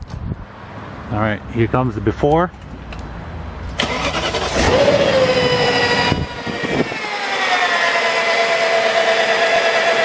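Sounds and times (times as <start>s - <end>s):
loud engine whine: 3.8s - 10.0s.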